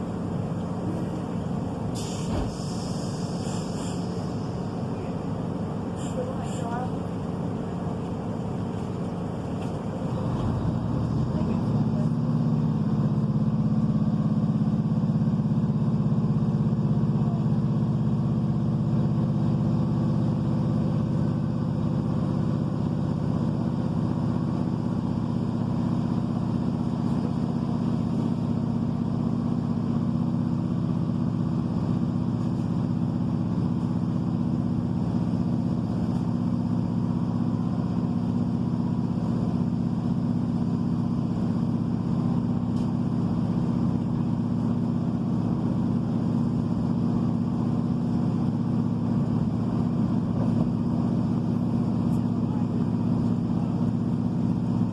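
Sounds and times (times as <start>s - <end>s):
train rumble: 0.0s - 15.2s, 47.2s - 54.9s
diesel engine running: 0.0s - 54.9s.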